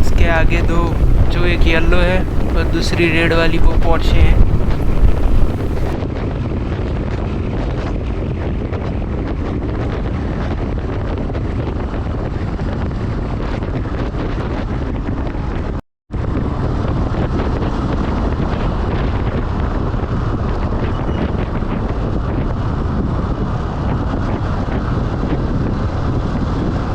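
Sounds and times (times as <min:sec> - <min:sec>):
motorcycle road noise: 0:00.0 - 0:06.0
wind rush on microphone: 0:00.0 - 0:26.9.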